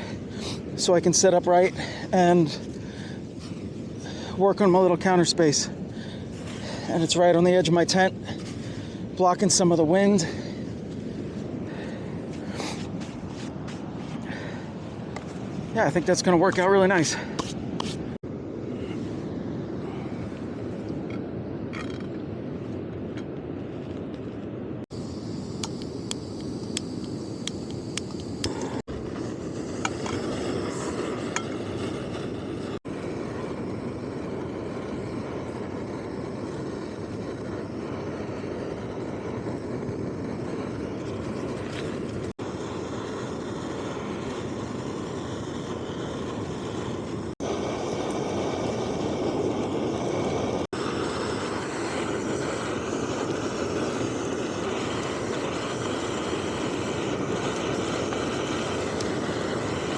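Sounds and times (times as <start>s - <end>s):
strong wind rushing: 0.0s - 59.9s.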